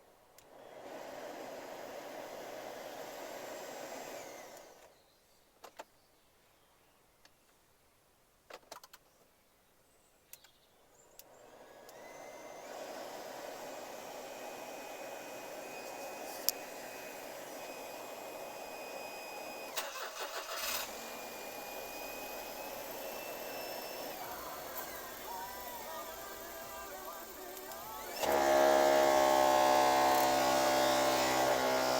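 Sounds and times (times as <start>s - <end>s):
electric fan whining: 11.9s - 31.9s
clicks: 24.1s - 28.5s.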